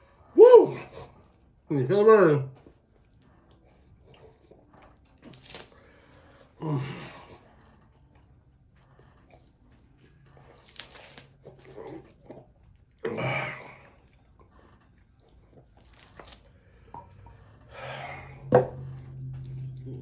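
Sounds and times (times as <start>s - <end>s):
man chewing: 2.6s - 20.0s
puff of breath: 16.6s - 19.0s
bottle knocking on table: 18.5s - 18.8s.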